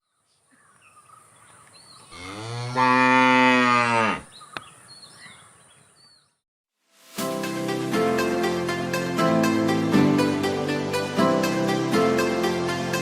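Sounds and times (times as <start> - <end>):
cow mooing: 2.1 - 4.3.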